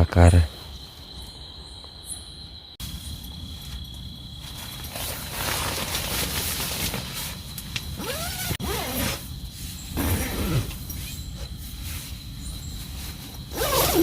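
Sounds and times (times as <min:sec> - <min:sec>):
crickets chirring: 0:00.0 - 0:14.0
rustling hiss: 0:02.8 - 0:14.0.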